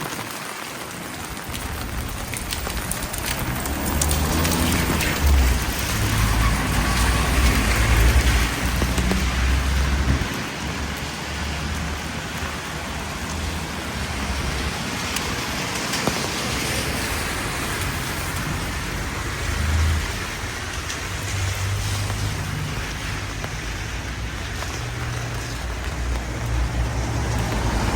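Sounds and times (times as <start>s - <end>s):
steady rain hiss: 0.0s - 27.9s.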